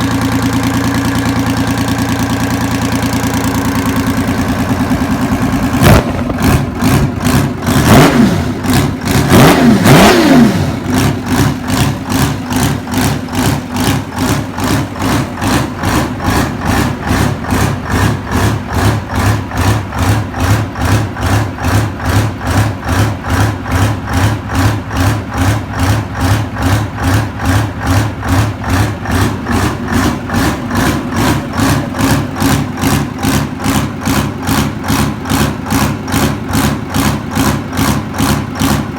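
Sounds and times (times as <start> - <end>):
diesel engine revving and idling: 0.0 - 38.9.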